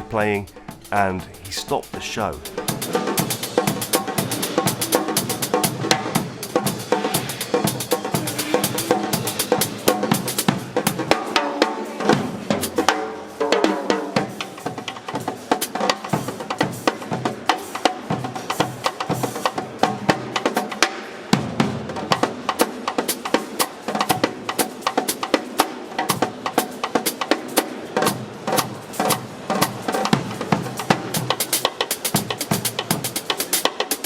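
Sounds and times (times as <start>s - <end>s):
drum kit groove with rimshots: 0.0s - 2.9s.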